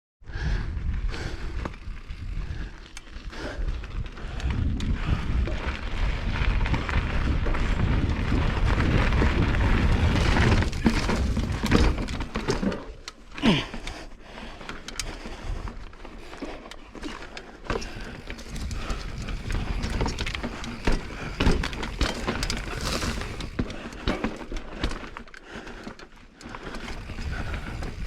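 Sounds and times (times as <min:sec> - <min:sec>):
bike tyres rumbling on trail: 0:00.2 - 0:28.0
bike knocks and rattles: 0:03.5 - 0:28.0.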